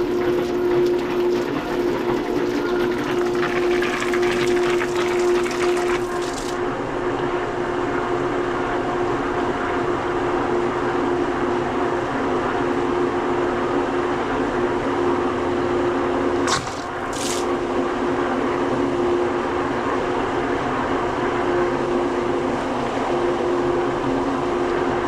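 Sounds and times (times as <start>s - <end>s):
pool pump humming: 0.0s - 6.6s, 16.4s - 17.8s
water rushing through pump: 0.0s - 6.6s, 16.4s - 17.6s
high hiss of water: 16.5s - 17.5s.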